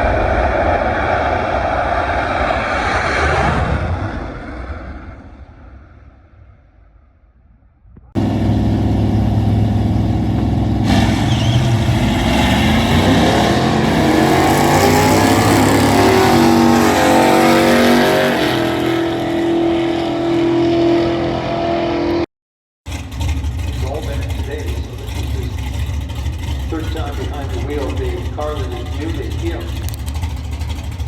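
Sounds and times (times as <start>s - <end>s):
racing car engine accelerating: 8.2s - 22.3s, 22.9s - 31.0s.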